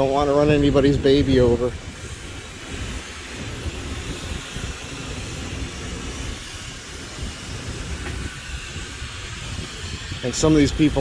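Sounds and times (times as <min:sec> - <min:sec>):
bicycle tyres on wooden planks: 0:00.0 - 0:11.0
wind on microphone: 0:00.0 - 0:11.0.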